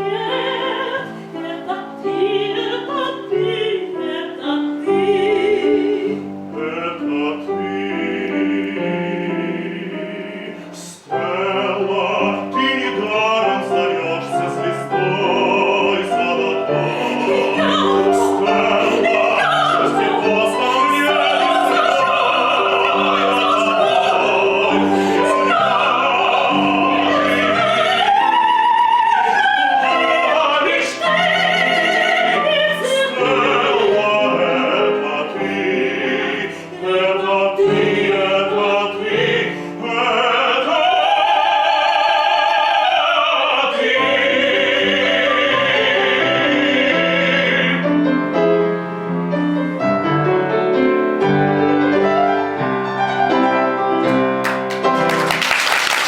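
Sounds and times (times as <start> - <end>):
piano accompaniment: 0.0 - 56.0
soprano singing: 0.0 - 56.0
man singing operatically: 6.5 - 28.3, 29.2 - 48.0.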